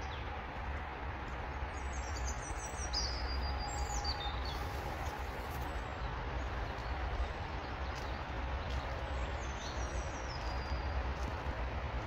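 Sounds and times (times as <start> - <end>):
songbird singing: 1.7 - 11.4.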